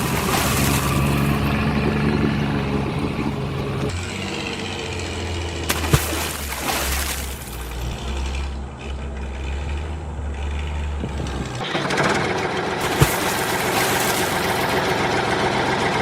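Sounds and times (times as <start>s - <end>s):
engine knocks: 0.0s - 16.0s
vehicle engine idling: 0.0s - 16.0s.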